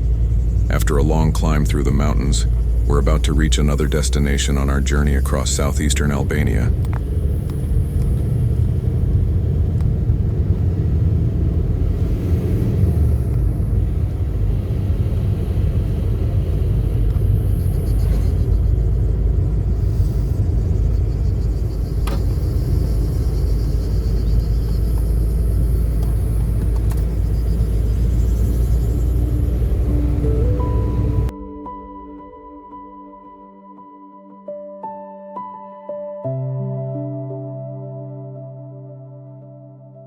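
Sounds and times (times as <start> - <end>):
car engine and tyres rumble: 0.0 - 31.3.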